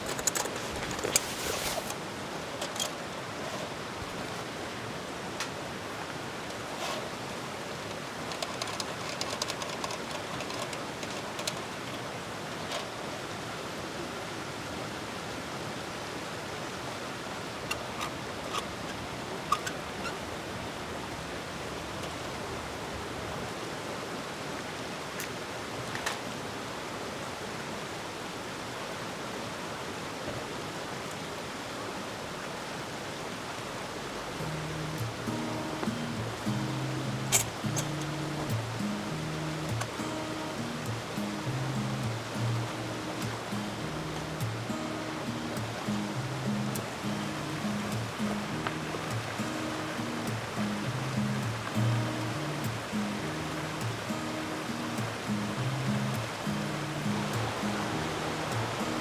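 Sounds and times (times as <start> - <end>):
steady rushing hiss: 0.0 - 59.0
light clicks and clinks: 7.8 - 13.0.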